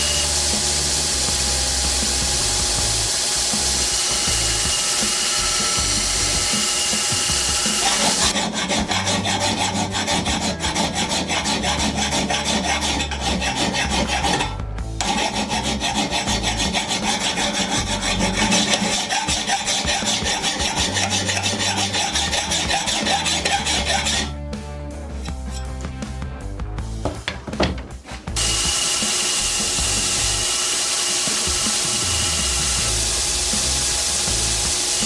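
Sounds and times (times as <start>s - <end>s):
power tool whine: 0.0s - 8.4s, 28.4s - 35.0s
hand file rasping on steel: 0.0s - 24.4s, 25.1s - 25.8s, 28.0s - 35.0s.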